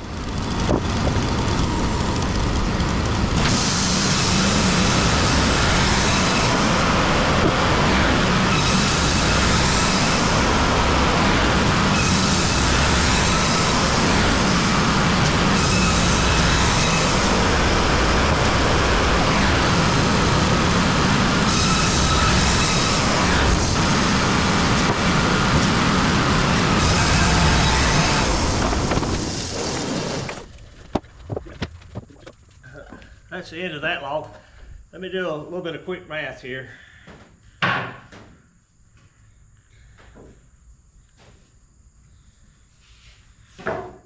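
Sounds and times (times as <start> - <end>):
band sawmill sawing wood: 0.0 - 30.6.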